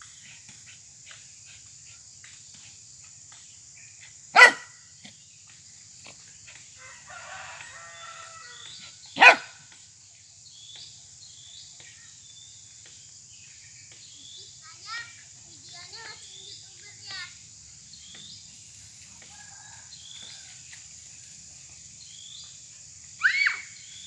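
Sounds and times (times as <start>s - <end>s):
dog barking: 4.4s - 4.8s, 9.2s - 9.6s.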